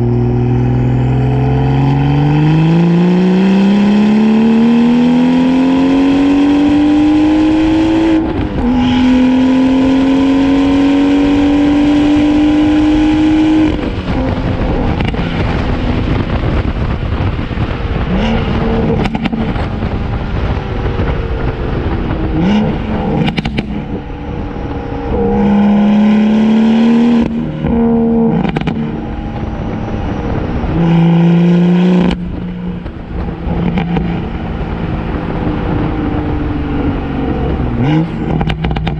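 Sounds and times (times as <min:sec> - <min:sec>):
car engine accelerating: 0:00.0 - 0:38.9
exhaust crackles and pops: 0:08.0 - 0:10.0, 0:12.1 - 0:38.9.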